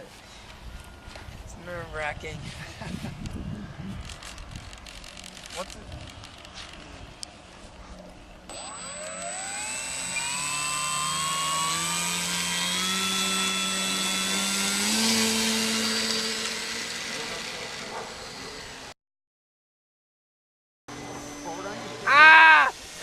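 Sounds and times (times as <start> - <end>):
model plane motor whining: 8.5 - 18.9.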